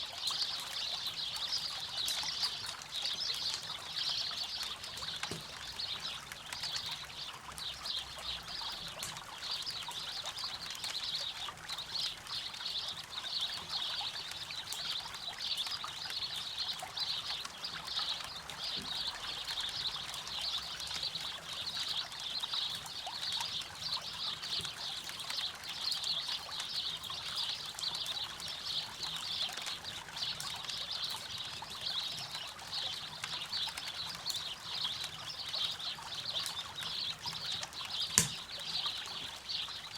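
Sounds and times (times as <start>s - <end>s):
campfire crackling: 22.7s - 39.4s.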